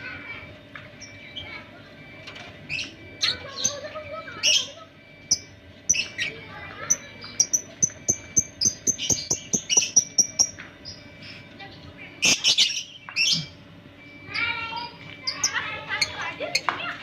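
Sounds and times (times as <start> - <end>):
lovebirds chirping and chattering: 0.0 - 17.0
harsh bird calls: 12.0 - 16.7.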